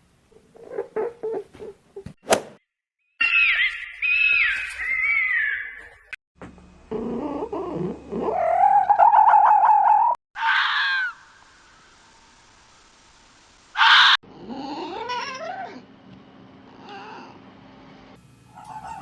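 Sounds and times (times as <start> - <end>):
animal call rising into wavering cry: 3.2 - 6.0, 7.0 - 11.3
high warbling animal calls: 3.2 - 6.1, 8.2 - 11.4, 18.6 - 19.0.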